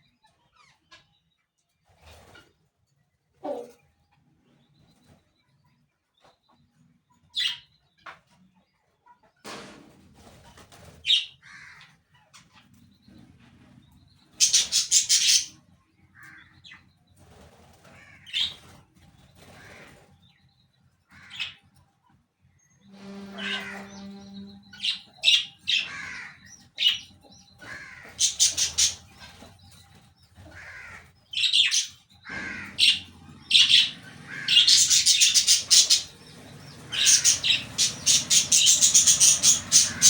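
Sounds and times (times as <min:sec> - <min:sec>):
birds chirping: 0:10.6 - 0:21.8, 0:22.4 - 0:40.0
wings flapping: 0:31.7 - 0:40.0.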